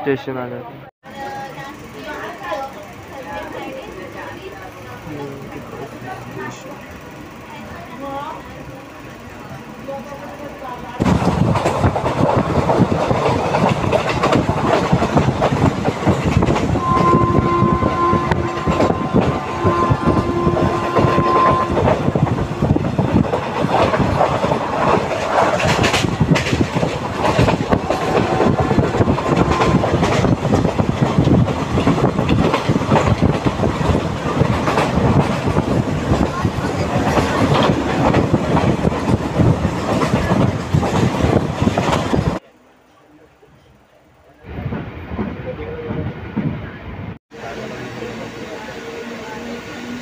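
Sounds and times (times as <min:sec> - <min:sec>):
train rumble with wheel knocks: 0:01.0 - 0:42.4, 0:43.9 - 0:50.0
two-tone train horn: 0:16.8 - 0:22.8, 0:27.8 - 0:30.2.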